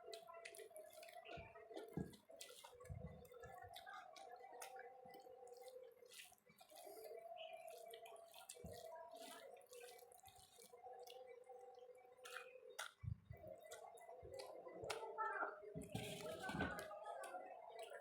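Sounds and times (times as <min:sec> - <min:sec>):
chewing and mouth smacks: 0:12.2 - 0:13.0.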